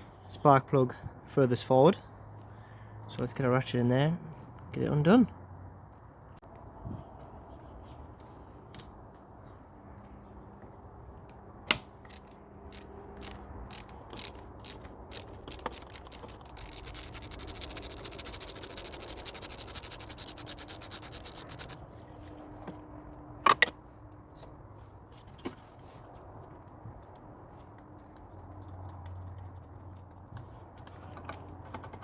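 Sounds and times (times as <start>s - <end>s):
socket ratchet clicking: 11.3s - 21.8s.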